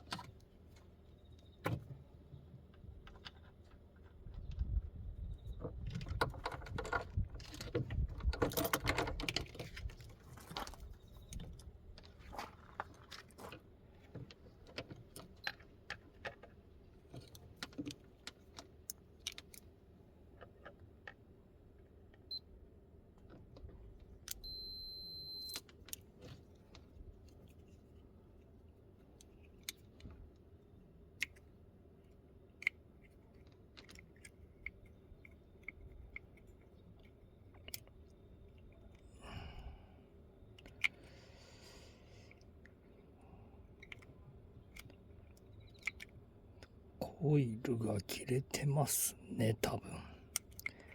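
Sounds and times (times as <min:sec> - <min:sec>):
electronic beep: 0:24.4 - 0:25.6.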